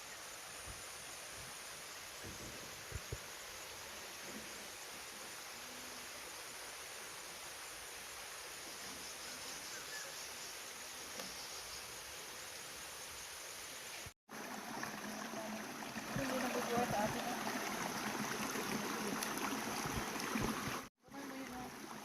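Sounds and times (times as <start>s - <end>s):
running water: 13.8s - 22.0s.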